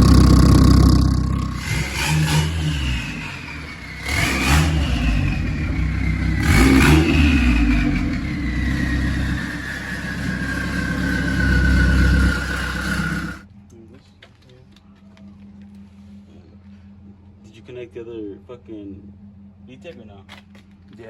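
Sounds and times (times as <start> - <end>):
car engine revving: 0.0 - 13.4
high falling whine: 0.0 - 13.4.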